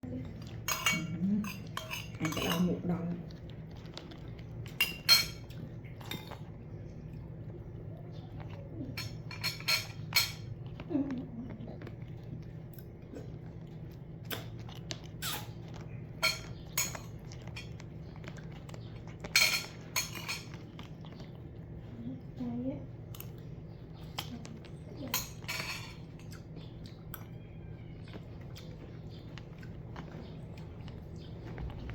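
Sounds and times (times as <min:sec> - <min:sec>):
food dish clinking: 0:00.6 - 0:02.8, 0:04.7 - 0:06.4, 0:08.9 - 0:10.5, 0:16.2 - 0:17.8, 0:19.2 - 0:20.6, 0:25.0 - 0:26.2.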